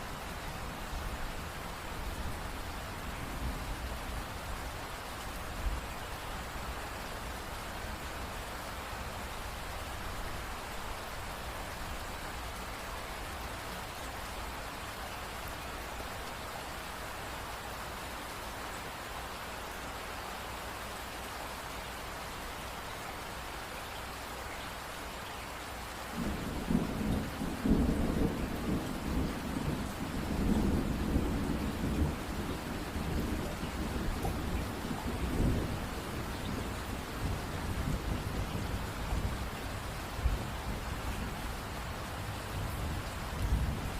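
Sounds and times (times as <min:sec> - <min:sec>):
rain falling: 0:00.0 - 0:43.9
rolling thunder: 0:26.2 - 0:39.4.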